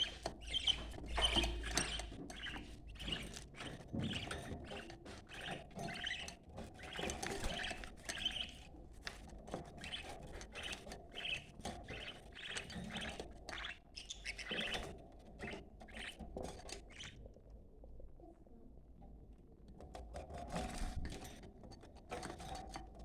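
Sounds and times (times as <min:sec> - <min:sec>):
budgerigars chattering and warbling: 0:00.0 - 0:08.7, 0:09.6 - 0:17.2.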